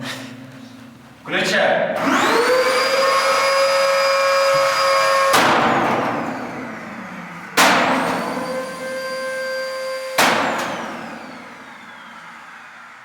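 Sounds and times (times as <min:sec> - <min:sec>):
vacuum cleaner motor whining: 0:02.0 - 0:13.0
sledgehammer striking cleaner: 0:04.6 - 0:06.4, 0:07.6 - 0:09.0, 0:10.1 - 0:11.2.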